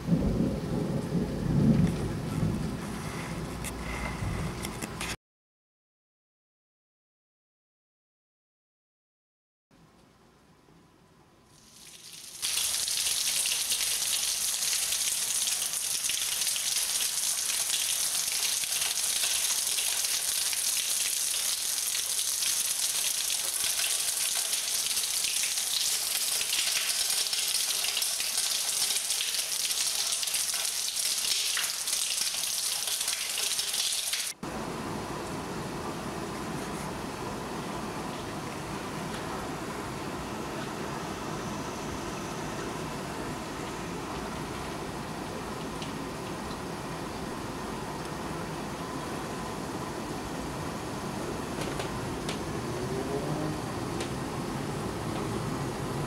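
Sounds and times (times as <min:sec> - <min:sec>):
heavy rain splashing on pavement: 0:11.7 - 0:34.4.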